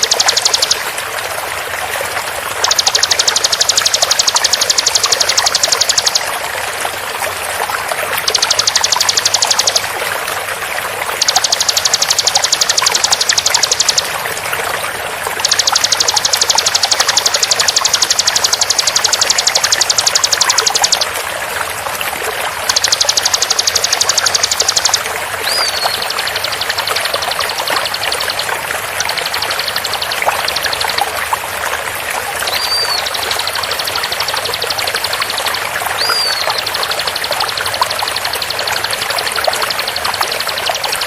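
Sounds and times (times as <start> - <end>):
bird rapid trill: 0.0 - 0.9, 2.6 - 6.4, 8.2 - 10.0, 11.1 - 14.3, 15.4 - 21.2, 22.6 - 31.2, 32.4 - 41.0.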